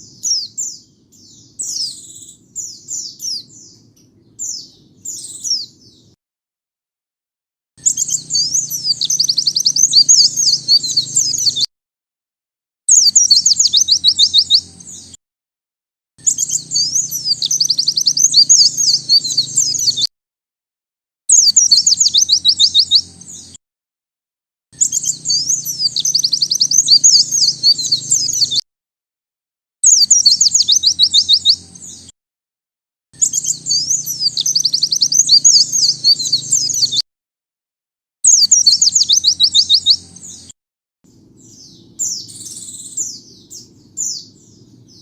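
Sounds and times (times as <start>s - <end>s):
bird twittering and trilling: 0.0s - 6.2s, 7.8s - 11.7s, 12.9s - 15.2s, 16.2s - 20.1s, 21.3s - 23.6s, 24.8s - 28.6s, 29.8s - 32.1s, 33.2s - 37.0s, 38.2s - 45.0s.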